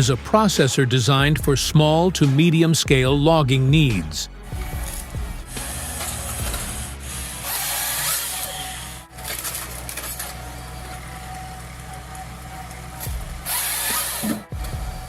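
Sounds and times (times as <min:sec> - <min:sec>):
machine hum: 0:04.4 - 0:15.0
saw cutting wood: 0:04.4 - 0:15.0
steady whine: 0:04.4 - 0:15.0.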